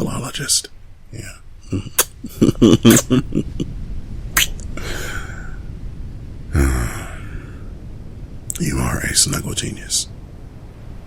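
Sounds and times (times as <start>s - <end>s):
man laughing softly: 1.7s - 3.7s
breathy exhale: 4.8s - 5.7s, 6.5s - 7.7s
short low voiced sound: 6.5s - 7.6s.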